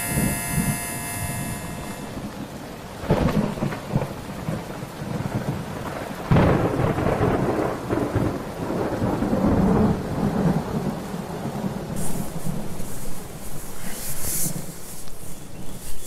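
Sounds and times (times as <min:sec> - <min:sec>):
steady rain: 0:00.0 - 0:16.0
rolling thunder rumble: 0:02.1 - 0:12.8
thunder crack: 0:03.0 - 0:10.8.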